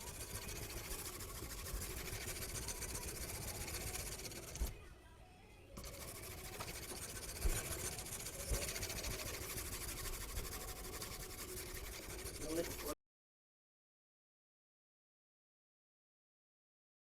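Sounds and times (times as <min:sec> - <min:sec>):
knife scraping sharpening stone: 0:00.0 - 0:04.7, 0:05.8 - 0:12.9.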